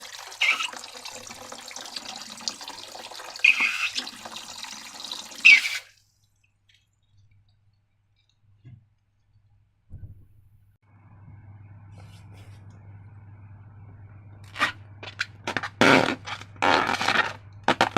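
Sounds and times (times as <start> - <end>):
liquid splashes: 0.0 - 7.1
liquid pouring and sloshing: 0.0 - 7.6.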